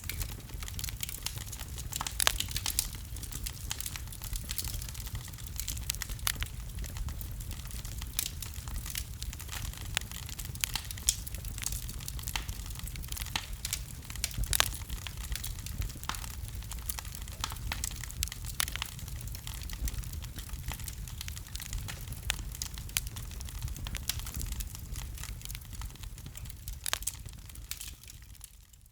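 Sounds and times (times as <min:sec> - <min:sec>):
sharp pops of fire: 0:00.0 - 0:28.6
wood fire crackling: 0:00.0 - 0:28.9.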